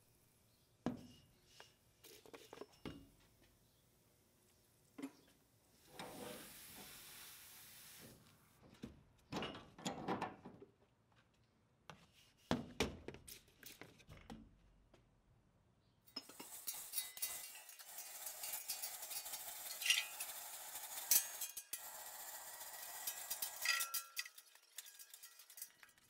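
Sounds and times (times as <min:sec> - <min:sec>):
soft hiss: 0:03.6 - 0:08.5
metallic clinks and knocks: 0:23.0 - 0:26.0.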